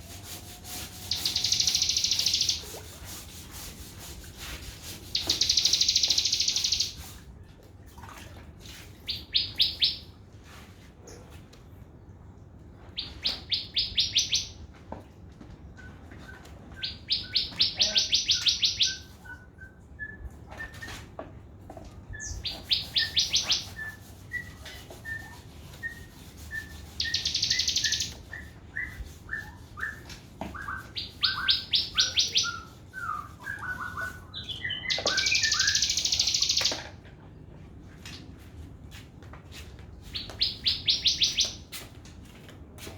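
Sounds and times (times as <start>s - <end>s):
bird song with rattling trills: 1.1s - 2.8s, 5.1s - 7.0s, 13.0s - 14.6s, 16.8s - 19.1s, 22.2s - 30.0s, 30.6s - 36.9s, 40.2s - 41.6s
thin whistled bird notes: 5.1s - 7.0s, 22.2s - 36.7s.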